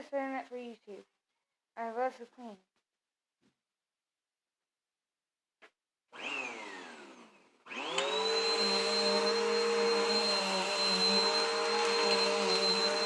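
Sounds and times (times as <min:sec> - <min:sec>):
vacuum cleaner motor whining: 0:06.2 - 0:13.0.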